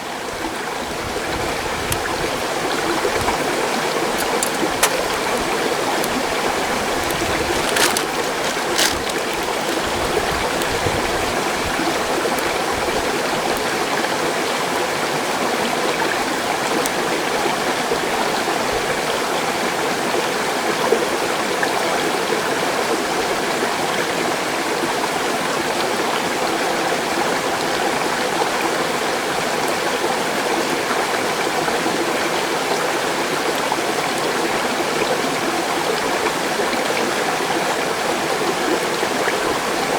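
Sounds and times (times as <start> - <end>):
stream rushing over rocks: 0.2 - 17.8.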